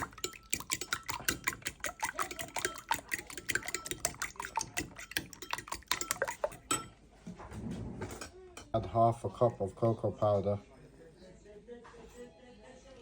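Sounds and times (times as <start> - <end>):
liquid sloshing: 0.0 - 6.9
whisk beating eggs in bowl: 0.0 - 6.9.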